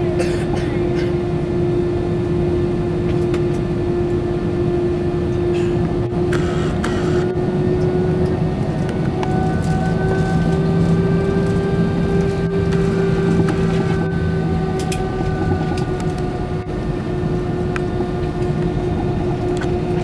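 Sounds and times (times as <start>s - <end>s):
jet engines idling with whine: 0.0s - 20.0s
cabin rumble: 5.5s - 7.4s, 8.7s - 20.0s.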